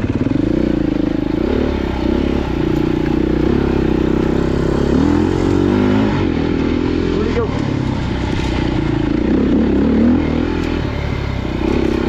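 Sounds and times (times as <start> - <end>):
off-road motorcycle engine: 0.0 - 12.0.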